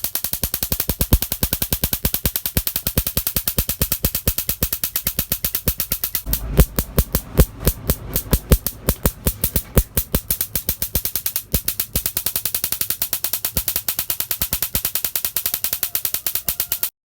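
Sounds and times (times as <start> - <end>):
small engine popping: 0.0 - 17.0.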